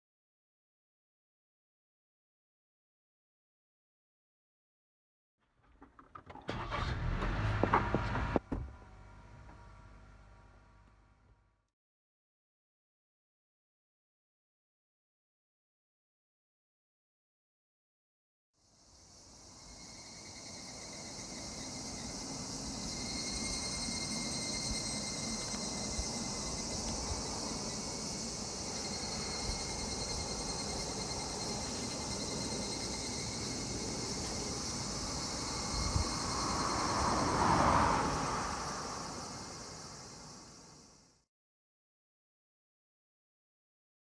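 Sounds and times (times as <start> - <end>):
insects chirping: 18.6 - 41.2.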